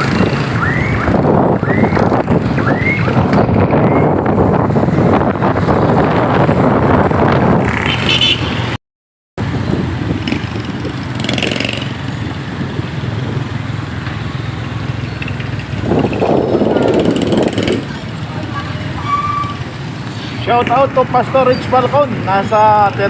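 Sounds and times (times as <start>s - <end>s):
motorcycle engine: 0.0s - 8.8s, 9.4s - 22.3s
road noise: 0.0s - 8.8s, 9.4s - 23.0s
wind rushing over microphone: 0.0s - 8.8s, 9.4s - 19.0s.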